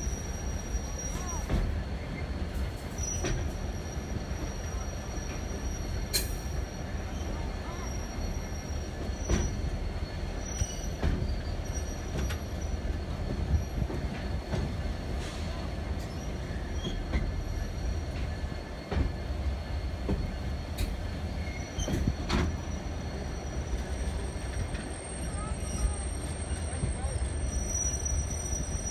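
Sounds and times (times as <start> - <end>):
faint high wheel squeal: 0.0 - 28.9
train running gear rumble: 0.0 - 28.9.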